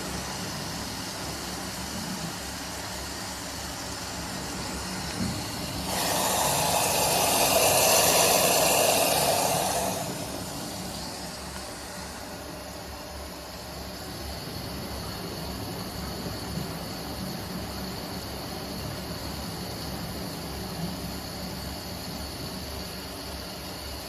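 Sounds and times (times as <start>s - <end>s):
washing machine humming: 0.0s - 24.0s.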